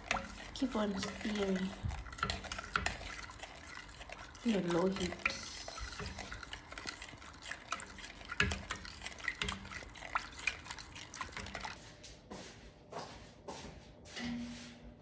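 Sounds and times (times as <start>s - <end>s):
spoon scraping a pot: 0.0s - 11.8s.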